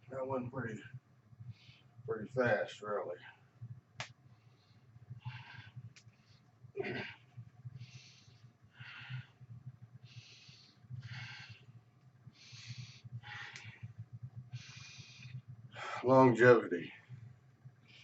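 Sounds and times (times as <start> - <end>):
faint low hum: 0.0 - 18.0
man breathing hard: 7.8 - 9.4, 10.1 - 11.7, 12.3 - 13.9.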